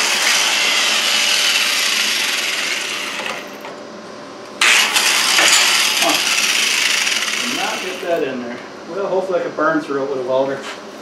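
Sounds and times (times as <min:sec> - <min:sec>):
power tool grinding steel: 0:00.0 - 0:03.6, 0:04.6 - 0:08.2.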